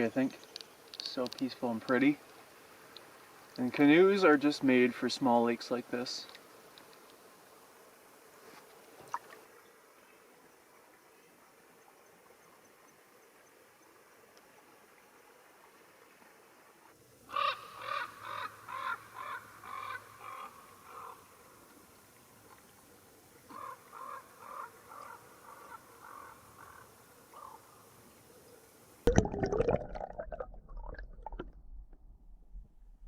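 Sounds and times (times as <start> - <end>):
crow cawing: 17.3 - 21.2, 23.5 - 27.6.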